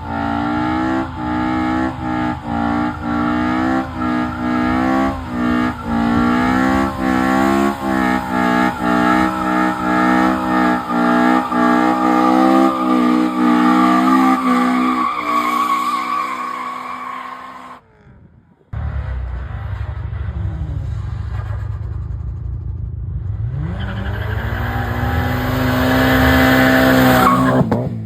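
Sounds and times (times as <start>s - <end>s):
car engine revving high: 0.0s - 17.8s, 23.1s - 28.0s
tyres squealing: 0.0s - 17.8s.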